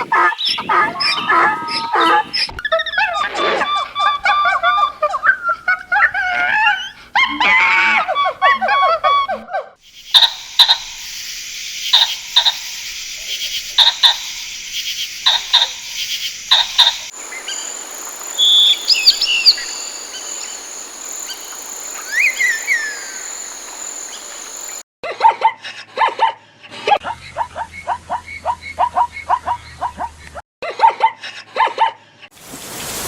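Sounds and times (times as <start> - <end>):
high-pitched insect chorus: 9.8 - 24.8
quick bird chirps: 9.9 - 24.8.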